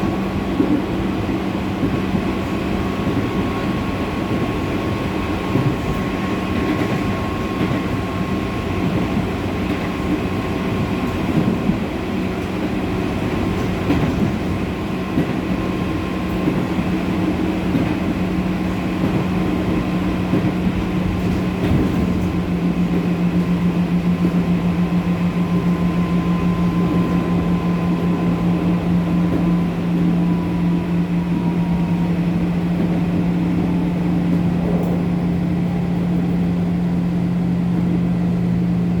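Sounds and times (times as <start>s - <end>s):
wheels rumbling on rail: 0.0s - 39.0s
train motor whine: 15.6s - 39.0s.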